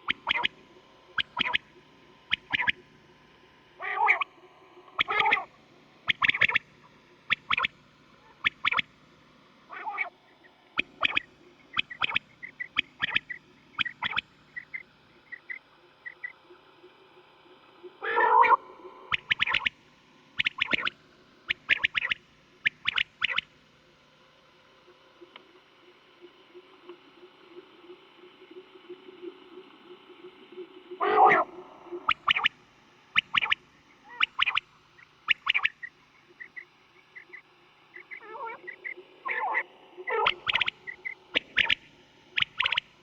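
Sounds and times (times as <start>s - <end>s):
quail short sharp calls: 0.0s - 0.5s, 1.2s - 1.6s, 2.3s - 2.8s, 3.8s - 4.3s, 5.0s - 5.5s, 6.1s - 6.6s, 7.3s - 8.9s, 9.7s - 10.1s, 10.8s - 14.8s, 18.0s - 19.7s, 20.4s - 23.5s, 31.0s - 32.6s, 33.2s - 34.6s, 35.3s - 42.9s
longer lower quail call: 0.0s - 2.8s, 3.8s - 4.3s, 4.9s - 6.6s, 9.7s - 16.6s, 18.0s - 19.8s, 20.4s - 23.5s, 30.2s - 43.0s.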